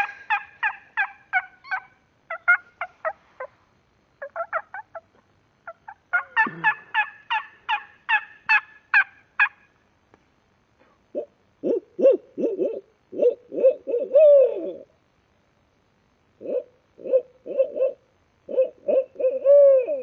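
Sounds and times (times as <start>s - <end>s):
man imitating owl hoots: 11.1s - 14.9s, 16.4s - 20.0s.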